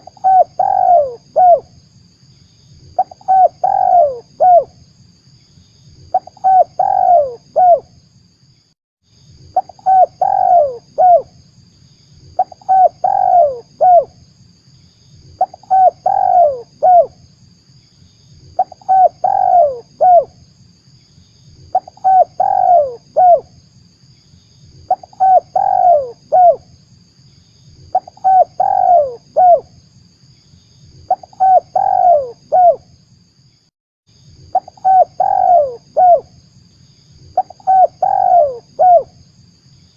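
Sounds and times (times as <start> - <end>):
dove cooing: 0.0 - 1.7, 3.0 - 4.7, 6.1 - 7.9, 9.6 - 11.3, 12.4 - 14.1, 15.4 - 17.2, 18.6 - 20.4, 21.7 - 23.5, 24.9 - 26.6, 27.9 - 29.7, 31.1 - 32.8, 34.5 - 36.3, 37.4 - 39.1.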